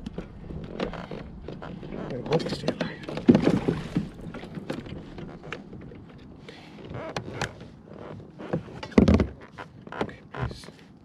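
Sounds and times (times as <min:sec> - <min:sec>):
gear clattering in a kayak: 0:00.0 - 0:11.0.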